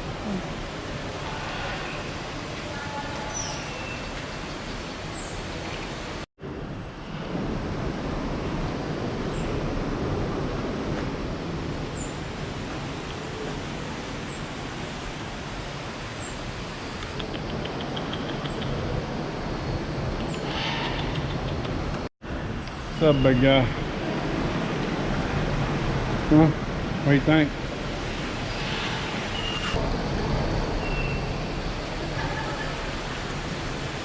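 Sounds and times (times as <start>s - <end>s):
steady rushing ambient noise: 4.3s - 34.0s
small bird chirping: 17.1s - 18.8s.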